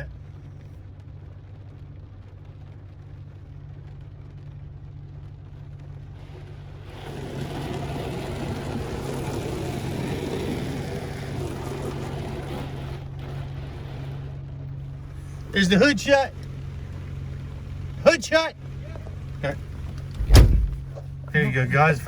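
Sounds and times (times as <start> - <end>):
car engine idling: 0.0 - 0.8, 5.9 - 22.0.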